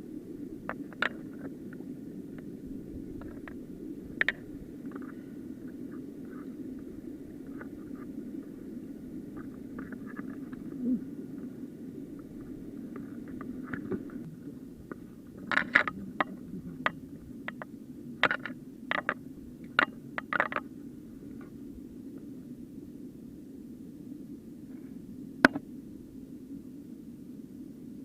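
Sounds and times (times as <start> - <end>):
sharp scrapes and clicks: 15.4 - 16.4, 17.5 - 20.6.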